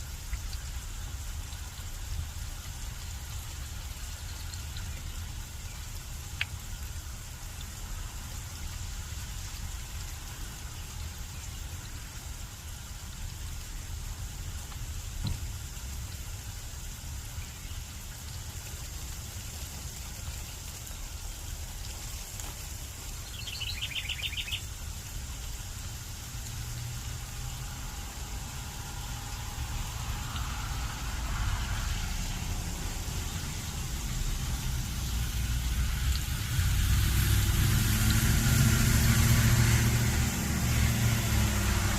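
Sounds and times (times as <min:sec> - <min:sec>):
light rain hissing: 0:00.0 - 0:41.9
bird trill: 0:23.3 - 0:24.6
vehicle engine rumble: 0:24.8 - 0:41.9
low wind rumble: 0:25.4 - 0:41.9.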